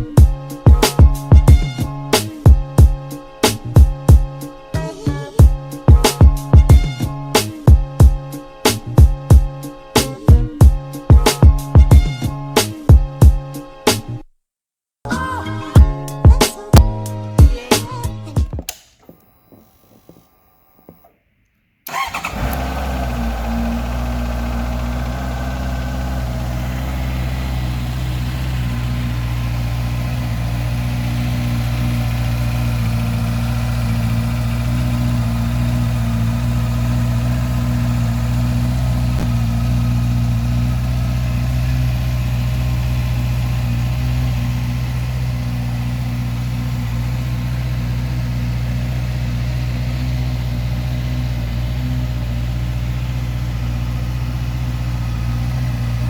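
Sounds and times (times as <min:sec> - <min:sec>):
motorcycle engine idling: 0:21.9 - 0:56.0.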